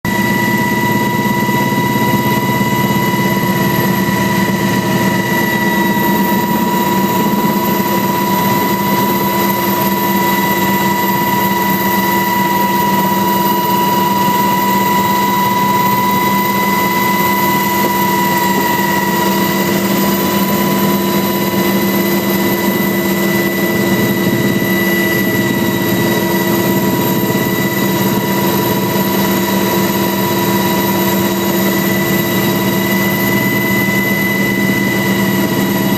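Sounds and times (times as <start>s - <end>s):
helicopter engine drone and whine: 0.0s - 35.9s.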